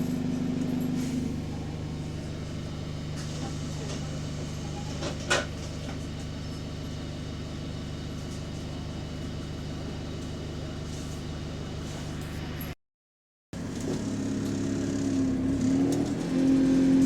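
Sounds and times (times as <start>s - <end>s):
bus engine running: 0.0s - 12.8s, 13.6s - 17.0s.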